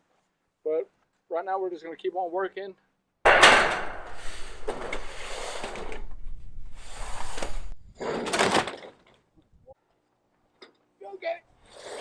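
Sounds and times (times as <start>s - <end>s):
metal roofing sheets scraping and rattling: 3.3s - 9.1s.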